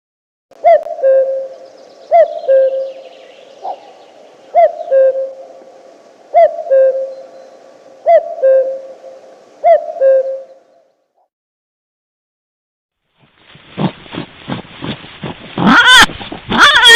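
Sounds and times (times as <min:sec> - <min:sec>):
animal hooting call: 0:00.6 - 0:05.7, 0:06.3 - 0:10.8, 0:15.6 - 0:16.9.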